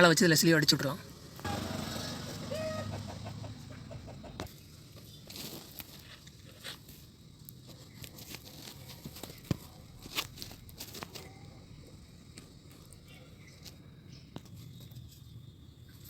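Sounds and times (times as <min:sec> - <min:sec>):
light clicks and plastic crackles: 0:04.4 - 0:11.5.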